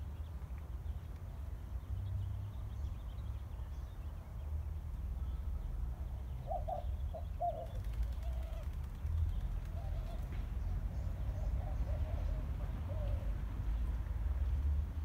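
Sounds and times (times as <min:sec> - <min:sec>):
birds chirping and calling: 0:05.2 - 0:13.8.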